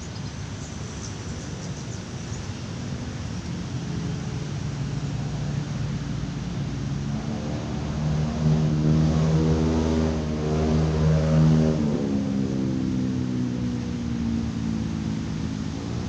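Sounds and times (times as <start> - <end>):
vehicle engine passing: 3.6 - 16.0.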